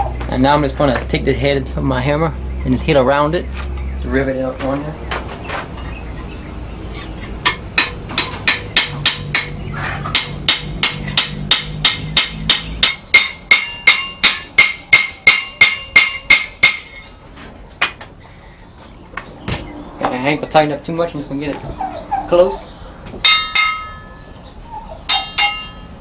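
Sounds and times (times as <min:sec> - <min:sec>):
hammer striking metal rivet: 0:07.4 - 0:17.1, 0:23.2 - 0:24.0, 0:25.1 - 0:25.8.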